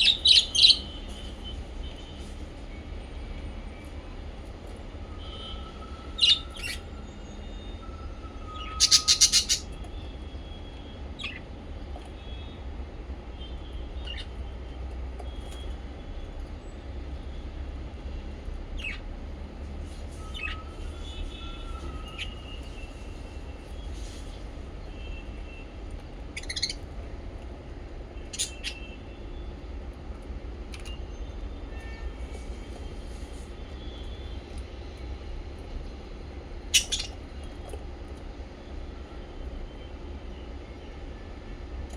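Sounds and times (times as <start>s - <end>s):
parrots chirping: 0.0s - 1.0s, 6.1s - 6.9s, 8.5s - 9.8s, 11.2s - 11.4s, 14.0s - 14.4s, 18.8s - 19.0s, 20.2s - 22.9s, 26.4s - 26.9s, 28.2s - 28.9s, 36.6s - 37.3s.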